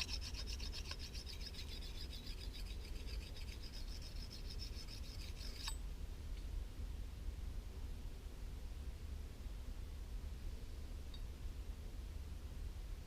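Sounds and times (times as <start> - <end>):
whetstone rasping on blade edge: 0.0 - 5.8.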